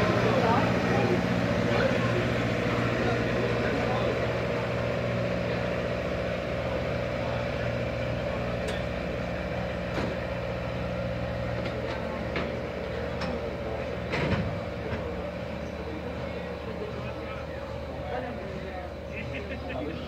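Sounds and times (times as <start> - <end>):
steady mechanical hum: 0.0 - 20.0
train cars clanking: 11.4 - 16.2.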